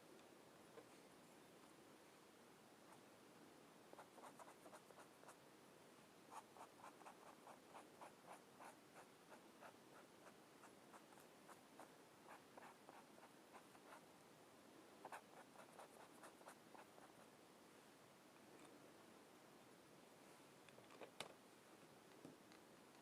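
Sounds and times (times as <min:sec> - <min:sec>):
colouring strokes on paper: 0:03.9 - 0:05.4, 0:06.3 - 0:14.1.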